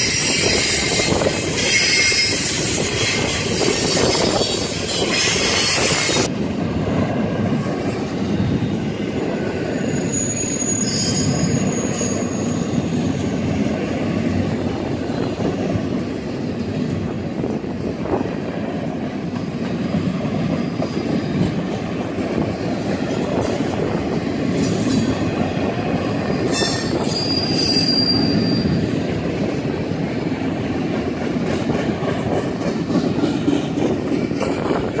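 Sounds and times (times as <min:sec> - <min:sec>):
high-pitched wheel squeals: 0:00.0 - 0:06.3, 0:09.7 - 0:12.9, 0:24.9 - 0:28.8
steel wheels rumbling on rail: 0:00.0 - 0:35.0.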